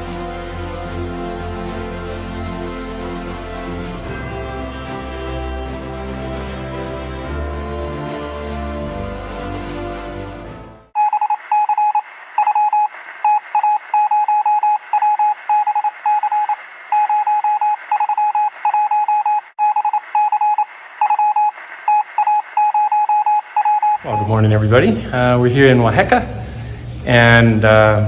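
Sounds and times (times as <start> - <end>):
music track: 0.0 - 10.9
morse code beeps: 11.0 - 24.6.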